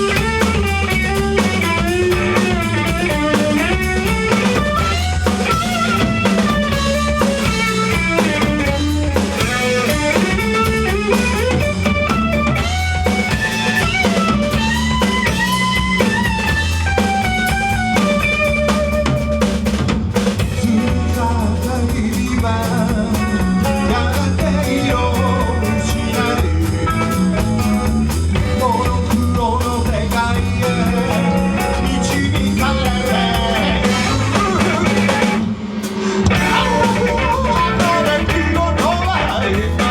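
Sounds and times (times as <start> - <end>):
lead guitar line bending: 0.0 - 20.0, 30.3 - 39.9
rock band playing live: 0.0 - 39.9.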